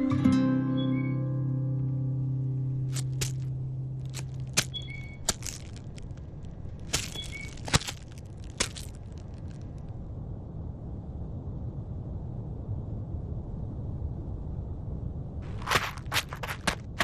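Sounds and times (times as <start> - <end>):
dry leaves and twigs crackling: 2.8 - 9.9, 15.4 - 17.0.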